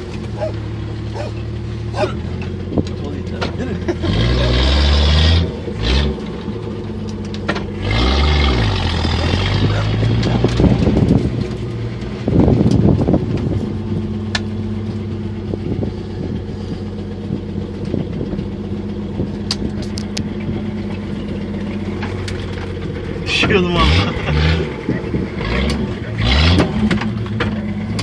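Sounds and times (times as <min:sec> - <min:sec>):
engine running off-road: 0:00.0 - 0:28.0
knocks and rattles: 0:25.6 - 0:28.0.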